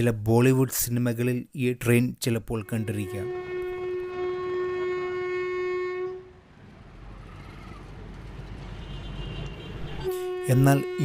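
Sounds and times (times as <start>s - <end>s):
train horn: 2.6s - 6.4s, 8.8s - 11.0s
train rumbling: 6.0s - 11.0s.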